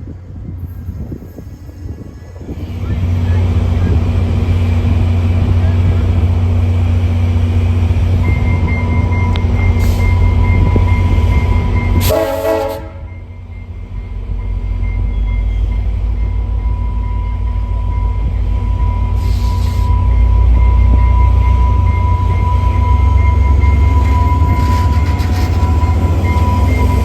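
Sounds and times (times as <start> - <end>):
diesel train engine rumble: 0.0 - 27.0
train horn blast: 12.0 - 13.2.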